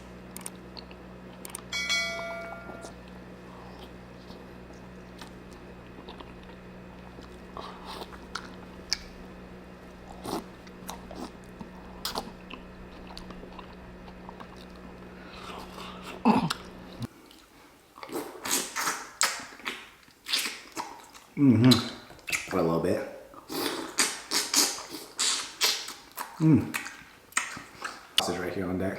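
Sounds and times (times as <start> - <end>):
steady low hum: 0.0 - 18.0
chewing and biting: 5.1 - 9.1, 9.9 - 22.5, 23.4 - 28.2.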